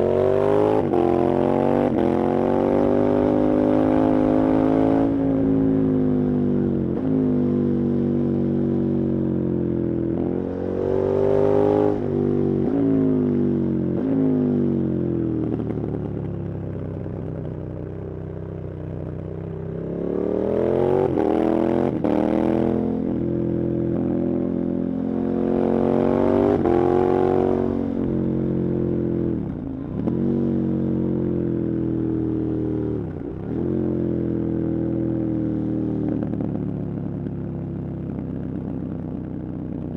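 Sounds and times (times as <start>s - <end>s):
motorcycle engine revving: 19.7s - 34.3s.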